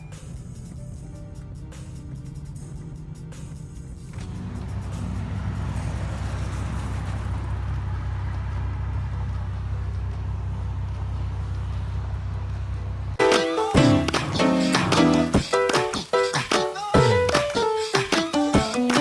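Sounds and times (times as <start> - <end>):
music: 0.0 - 4.3, 13.2 - 19.0
car exhaust drone: 0.0 - 13.2.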